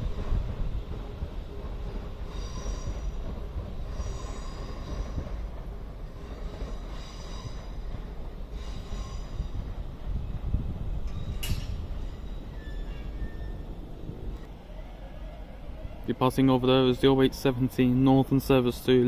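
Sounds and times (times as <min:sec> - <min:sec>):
train running past: 0:00.0 - 0:19.0
high-pitched wheel squeals: 0:11.1 - 0:13.8.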